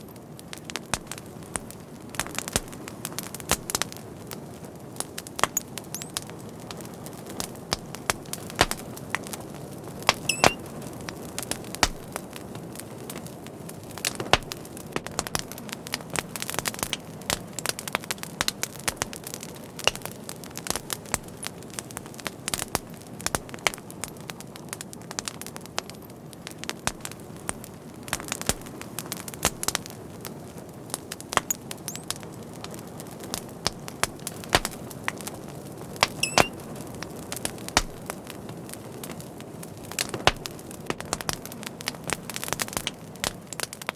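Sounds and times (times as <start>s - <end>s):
fire crackling and popping: 0.0s - 43.9s
soft hiss of fire: 0.0s - 43.9s
high whistle: 10.2s - 10.6s, 36.2s - 36.5s.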